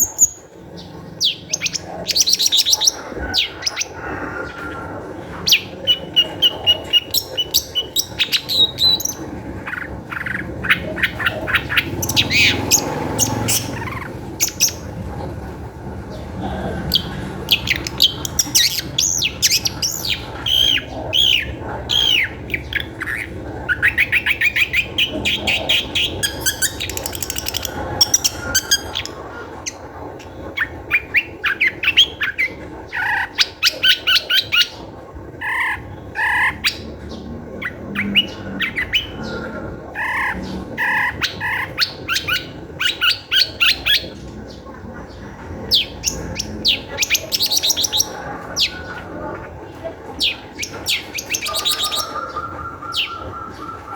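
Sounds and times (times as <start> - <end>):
shrike singing: 5.4 - 15.1, 16.1 - 29.9, 45.6 - 53.9.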